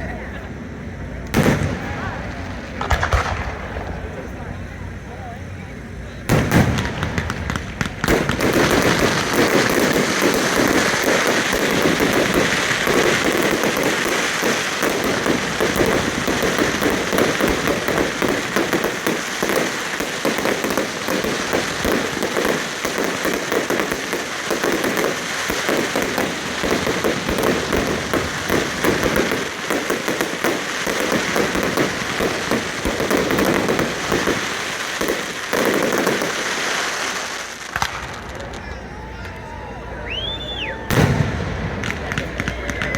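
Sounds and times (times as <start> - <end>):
fireworks crackling: 0.0 - 42.9
loud firework bang: 1.3 - 2.0, 2.7 - 4.1, 6.3 - 36.3, 40.9 - 42.9.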